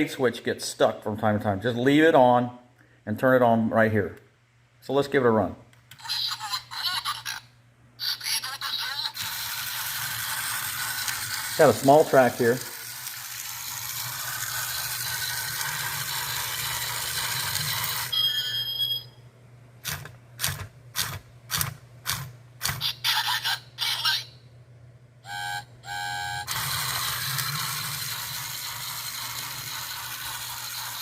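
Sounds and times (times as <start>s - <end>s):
toy train motor rattling: 8.2s - 18.2s, 26.0s - 31.0s
short electronic tone: 25.3s - 26.8s.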